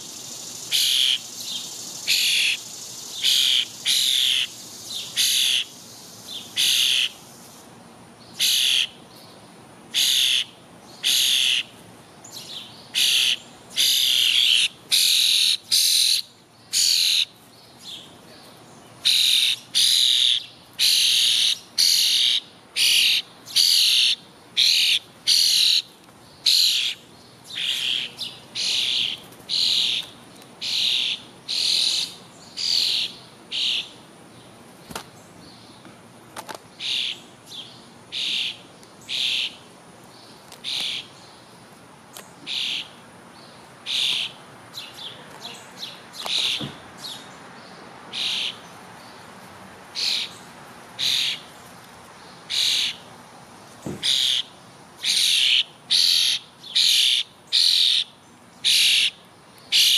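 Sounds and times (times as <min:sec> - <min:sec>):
bird harsh raspy call: 0:00.6 - 0:07.2, 0:08.4 - 0:09.0, 0:09.9 - 0:11.8, 0:12.9 - 0:17.3, 0:19.0 - 0:34.0, 0:36.8 - 0:37.2, 0:38.1 - 0:39.6, 0:40.6 - 0:41.2, 0:42.4 - 0:43.0, 0:43.8 - 0:47.2, 0:48.1 - 0:48.7, 0:50.0 - 0:51.5, 0:52.5 - 0:53.1, 0:54.0 - 0:59.9.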